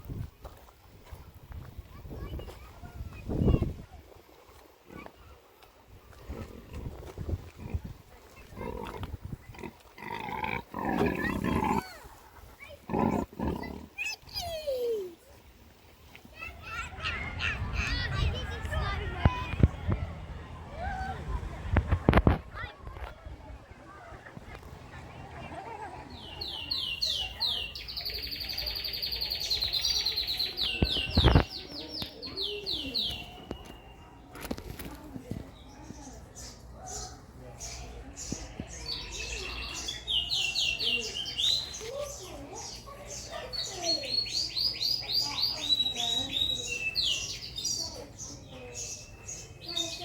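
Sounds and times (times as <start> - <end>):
songbird singing: 24.6 - 50.0.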